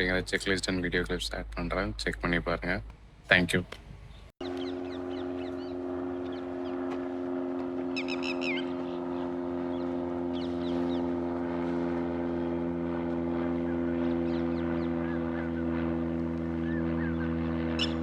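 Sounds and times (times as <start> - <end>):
steady droning hum: 0.0 - 18.0
small birds chirping: 3.3 - 6.4.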